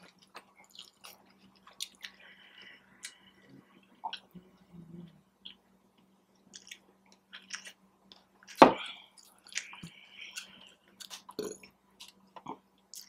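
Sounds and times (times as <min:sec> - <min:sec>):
person chewing crunchy food: 0:00.0 - 0:02.4, 0:06.4 - 0:13.0
faint steady hum: 0:00.0 - 0:13.0.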